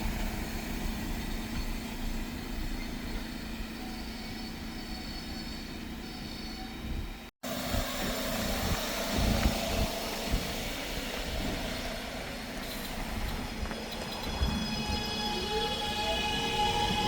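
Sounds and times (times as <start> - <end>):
large vehicle rumbling: 0.0 - 17.0.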